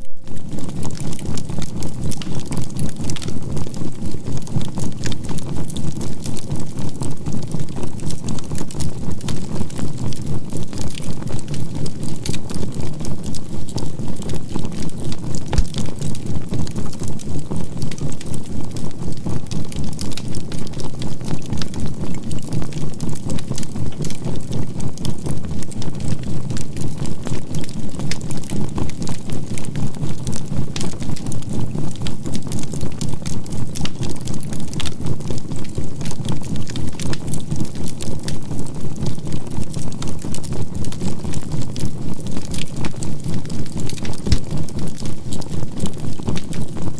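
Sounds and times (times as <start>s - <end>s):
pulsing low synthesized tone: 0.0s - 0.8s
charcoal fire crackling and popping: 0.0s - 46.9s.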